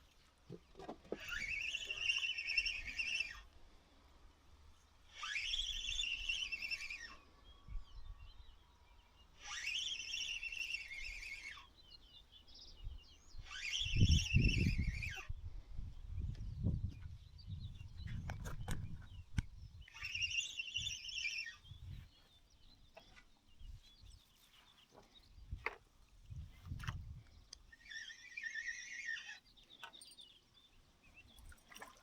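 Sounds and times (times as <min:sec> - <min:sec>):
faint bird chirps: 0:01.2 - 0:03.5, 0:04.7 - 0:32.0
songbird trilling: 0:17.2 - 0:24.9, 0:27.5 - 0:31.6.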